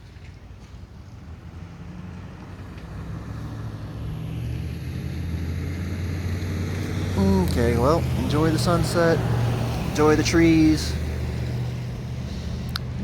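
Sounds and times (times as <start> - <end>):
vehicle engine hum: 0.2 - 13.0.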